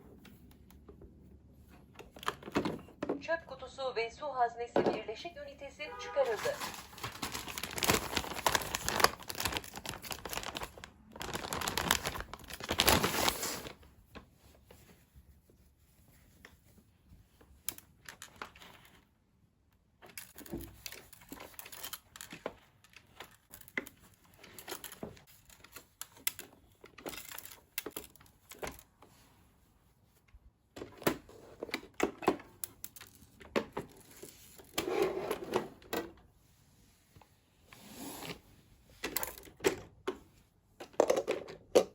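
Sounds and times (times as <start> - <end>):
rustling and scraping: 6.2 - 19.1, 32.9 - 41.2.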